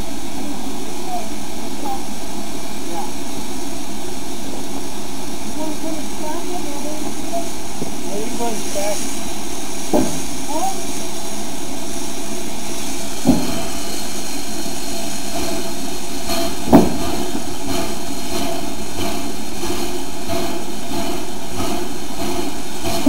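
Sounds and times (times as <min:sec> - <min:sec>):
steam train running: 0:00.0 - 0:23.0
sharp knocks: 0:09.9 - 0:10.2, 0:16.3 - 0:23.0.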